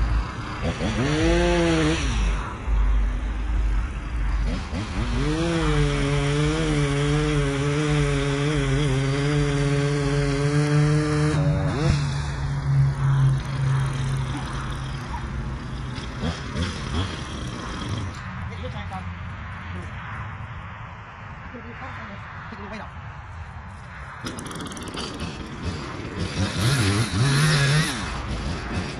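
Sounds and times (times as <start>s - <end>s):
chainsaw cutting wood: 0.0s - 2.4s, 4.3s - 18.3s, 24.2s - 28.9s.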